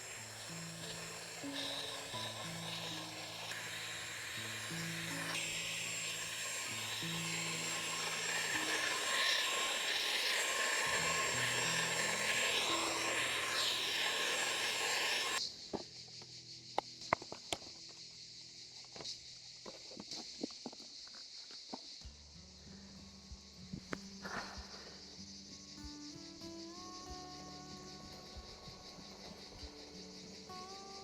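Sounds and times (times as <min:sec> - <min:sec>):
electric air pump whirring: 0:00.0 - 0:15.4.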